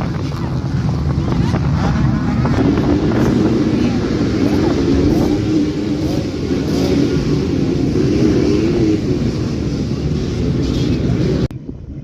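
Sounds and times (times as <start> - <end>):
dirt bike engine revving: 1.4 - 11.5.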